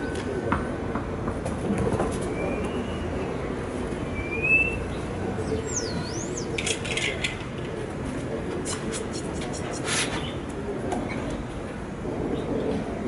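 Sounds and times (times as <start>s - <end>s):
small birds chirping and whistling: 4.1s - 6.6s.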